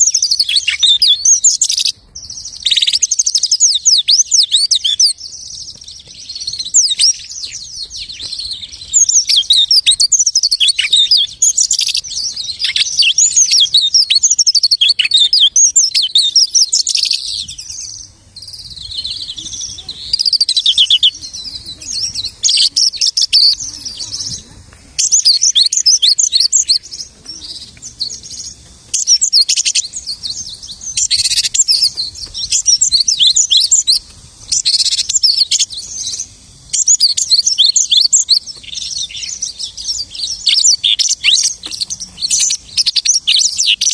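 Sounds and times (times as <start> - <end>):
lark singing warbles and trills: 0.0 - 43.9.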